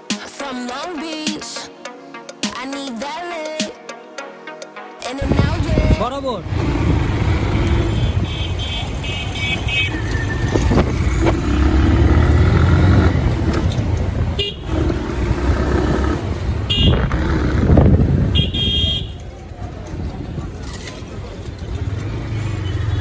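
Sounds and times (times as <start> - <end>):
wind on microphone: 5.2 - 21.7
motorcycle engine rumble: 5.2 - 23.0
vehicle horns beeping: 6.5 - 19.4, 22.3 - 23.0.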